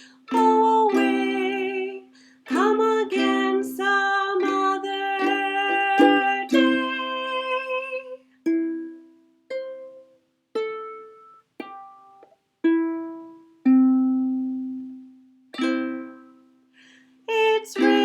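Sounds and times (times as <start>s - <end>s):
plucked string chords: 17.8s - 18.0s.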